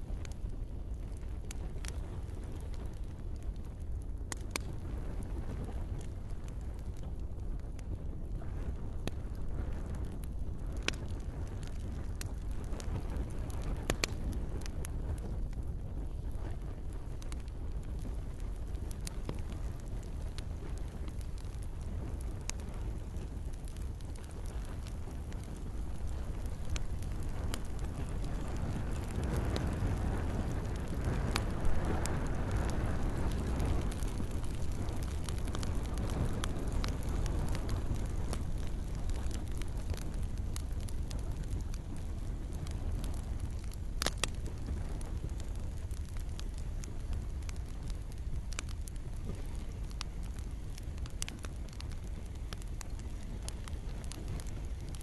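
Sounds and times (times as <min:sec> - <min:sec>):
campfire crackling and popping: 0:00.0 - 0:55.0
low fire rumble: 0:00.0 - 0:55.0
gentle rain falling: 0:16.0 - 0:55.0.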